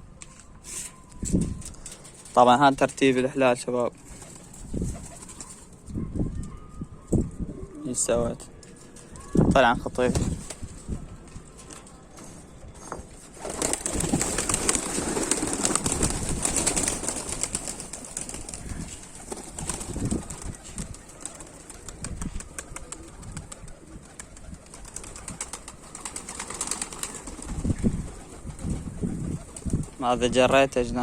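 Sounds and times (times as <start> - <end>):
pigeons cooing: 4.2 - 8.3, 14.3 - 30.0.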